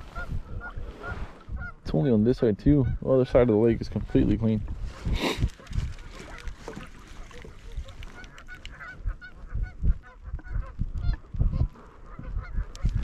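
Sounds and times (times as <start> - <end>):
geese honking: 7.2 - 13.0
dull low thumps and rumbles: 8.8 - 13.0.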